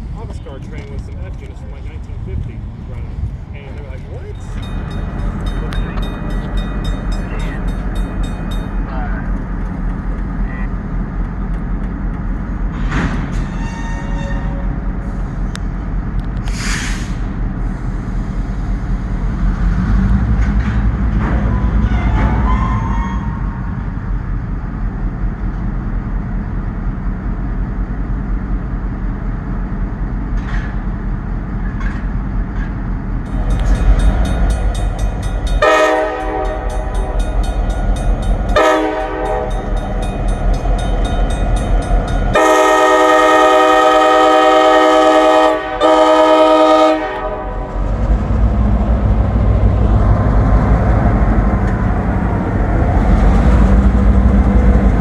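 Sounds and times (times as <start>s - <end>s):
low rumble of locomotives: 0.0s - 55.0s
locomotive air horn blasts: 13.5s - 14.7s, 35.6s - 36.9s, 38.6s - 39.6s, 42.3s - 47.7s.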